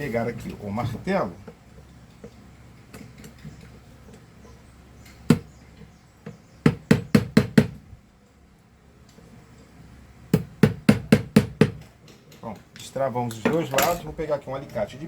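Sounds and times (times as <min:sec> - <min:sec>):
hammer tapping on metal tabs: 0:06.2 - 0:07.8, 0:10.3 - 0:14.0.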